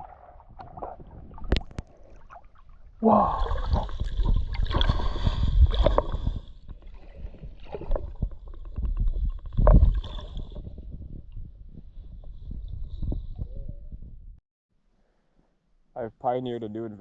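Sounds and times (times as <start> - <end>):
water splashing and sloshing: 0.0 - 10.9.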